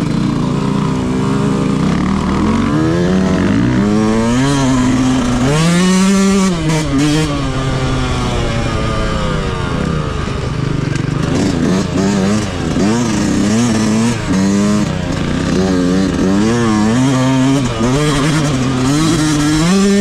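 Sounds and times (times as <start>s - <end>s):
two-stroke motocross engine revving: 0.0s - 20.0s.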